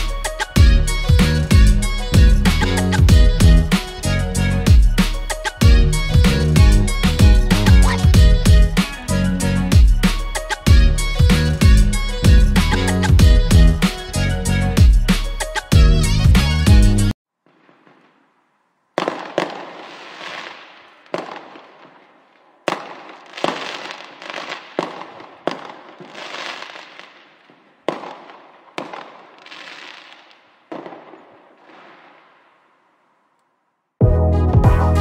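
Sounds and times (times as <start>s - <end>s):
fireworks banging and crackling: 4.7s - 9.1s, 9.7s - 14.2s, 17.3s - 33.1s.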